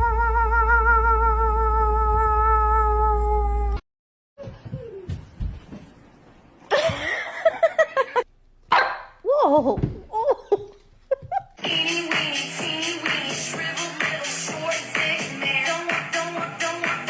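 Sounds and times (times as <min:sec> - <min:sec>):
background music: 0:11.6 - 0:17.0.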